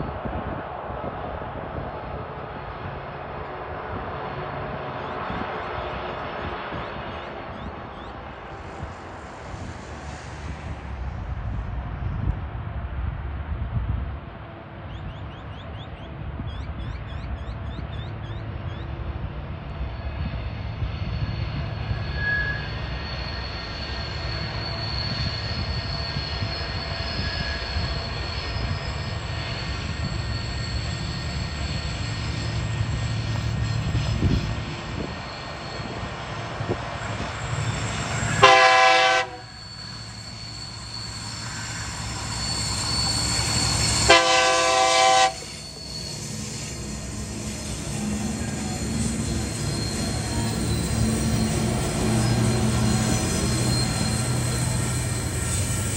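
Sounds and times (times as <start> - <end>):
diesel locomotive engines rumbling: 0.0 - 55.9
train horn blasts: 38.3 - 39.6, 43.8 - 45.6.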